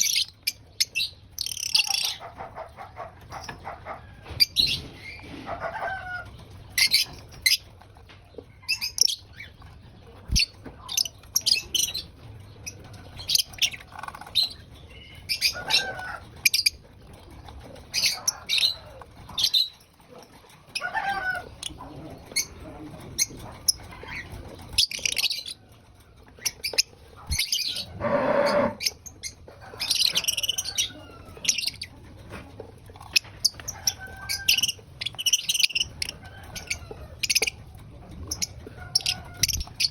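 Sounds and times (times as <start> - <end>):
lovebirds chirping: 33.0 - 37.6.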